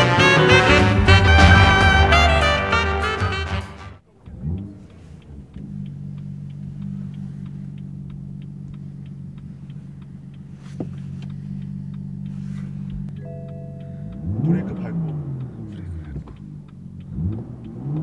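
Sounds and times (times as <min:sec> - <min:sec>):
car engine starting and idling: 0:00.0 - 0:18.0
hazard indicator ticking: 0:04.5 - 0:18.0.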